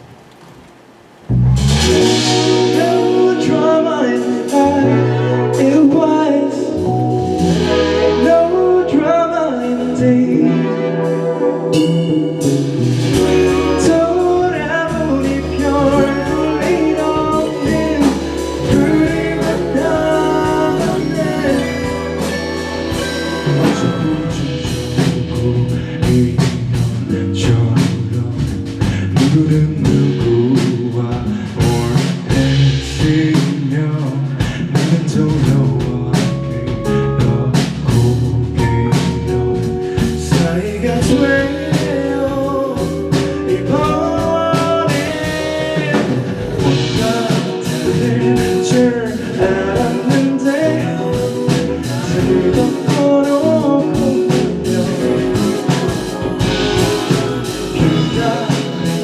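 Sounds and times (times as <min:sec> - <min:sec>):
live indie pop band playing: 0:01.6 - 0:59.0.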